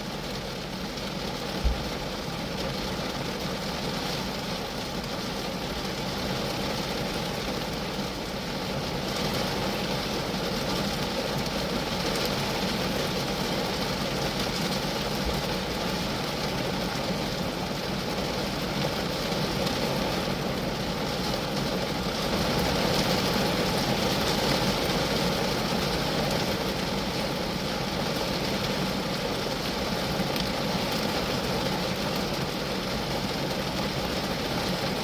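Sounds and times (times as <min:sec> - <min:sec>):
rain drumming on a car: 0:00.0 - 0:35.0.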